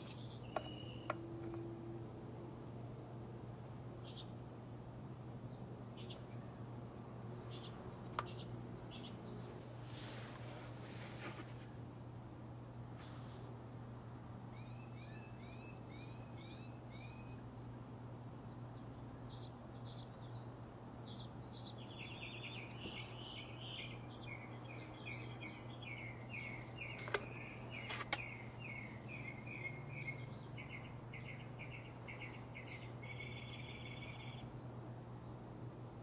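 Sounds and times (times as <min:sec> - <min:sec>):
songbirds singing: 0:00.0 - 0:02.0, 0:03.3 - 0:04.5, 0:05.2 - 0:10.6, 0:14.2 - 0:36.0.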